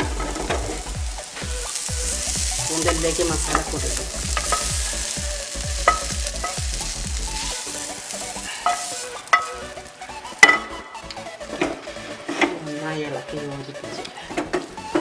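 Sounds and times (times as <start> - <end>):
spatula scraping a pan: 0.0 - 10.8
food sizzling: 0.0 - 13.9
spatula knocking on pan: 2.4 - 5.2, 5.8 - 6.8.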